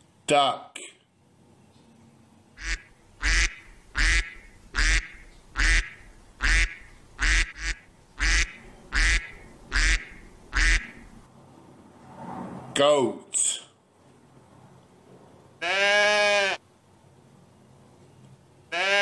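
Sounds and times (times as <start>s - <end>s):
duck quacking: 2.6s - 11.1s.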